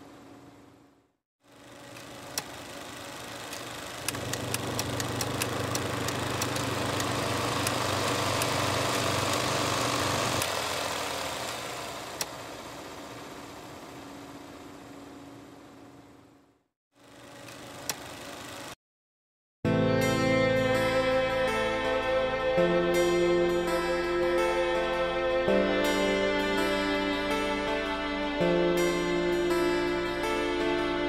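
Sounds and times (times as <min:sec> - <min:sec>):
car engine running: 0:01.5 - 0:18.8
sharp clicks: 0:03.5 - 0:07.8.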